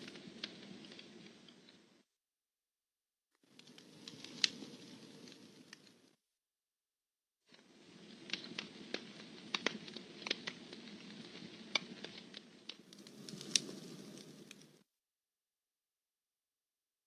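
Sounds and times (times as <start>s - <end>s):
campfire crackling and popping: 0.0s - 2.0s, 3.5s - 6.2s, 7.6s - 14.8s
hiss of burning wood: 0.0s - 2.0s, 3.5s - 6.2s, 7.6s - 14.8s.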